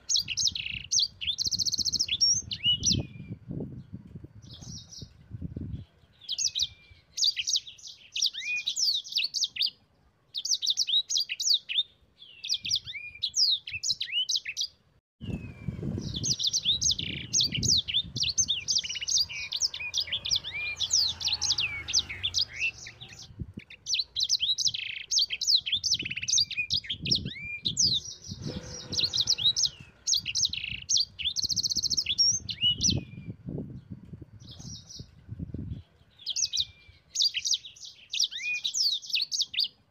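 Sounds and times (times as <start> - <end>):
finch singing rapid chattering song: 0.0 - 3.3, 10.4 - 33.2.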